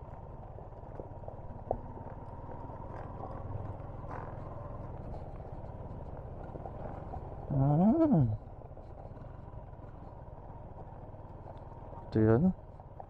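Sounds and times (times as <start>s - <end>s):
vehicle rumbling on road: 0.0s - 13.0s.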